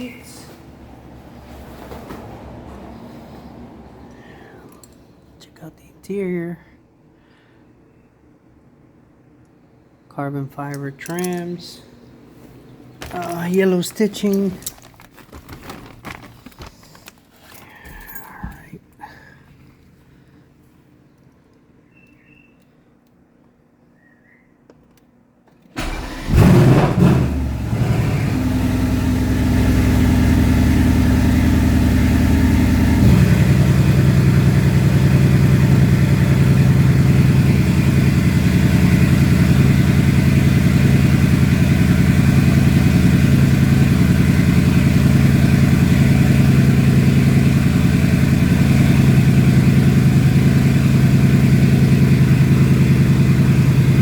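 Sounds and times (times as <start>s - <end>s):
starter cranking: 13.0s - 17.7s
car engine idling: 25.8s - 54.0s.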